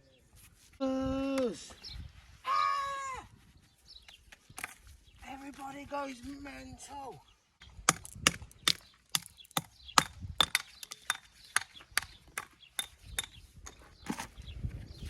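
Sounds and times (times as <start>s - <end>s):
hammer striking stone: 7.9s - 13.4s.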